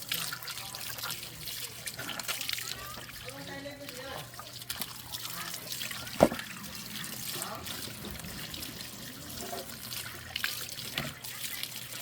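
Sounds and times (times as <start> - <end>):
water trickling: 0.0 - 12.0
sharp knock: 6.2 - 6.4.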